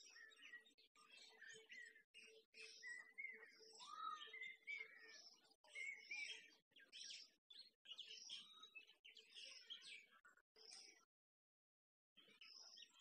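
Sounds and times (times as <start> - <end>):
small birds chirping: 0.0 - 11.1, 12.2 - 13.0.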